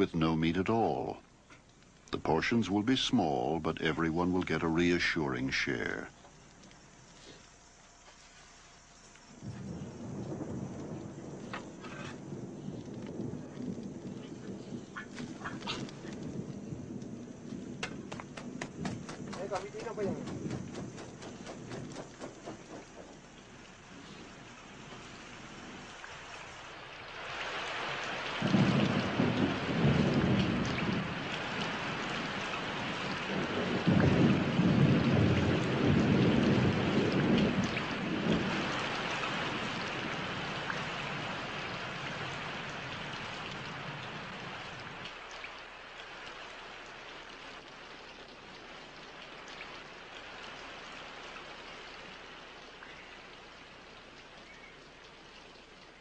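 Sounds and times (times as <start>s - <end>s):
heavy rain: 0.0s - 56.0s
rolling thunder: 9.3s - 45.2s.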